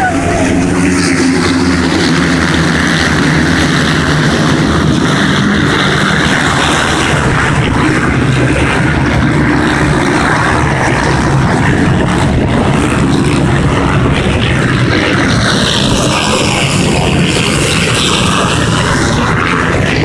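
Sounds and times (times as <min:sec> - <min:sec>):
many motorcycle engines droning: 0:00.0 - 0:20.0.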